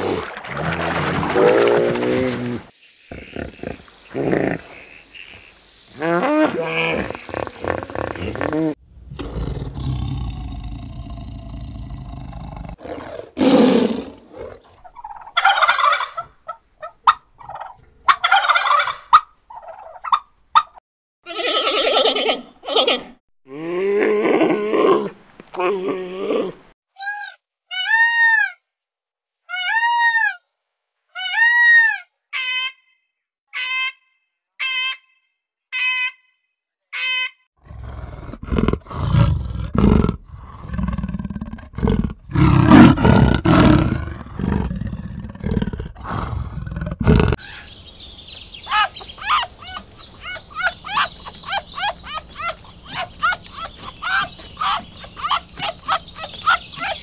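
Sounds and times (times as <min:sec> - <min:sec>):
big cat growling and roaring: 0:06.0 - 0:14.8, 0:37.6 - 0:47.4
high chattering calls: 0:47.4 - 0:57.0.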